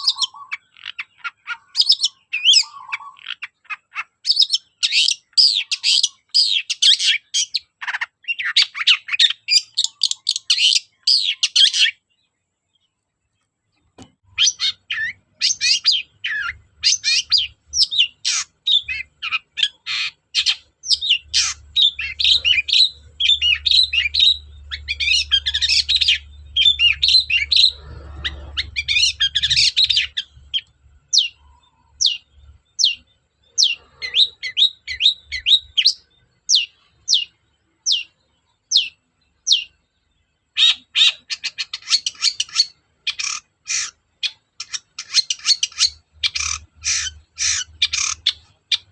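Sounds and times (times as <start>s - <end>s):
shrike singing: 14.2s - 33.0s.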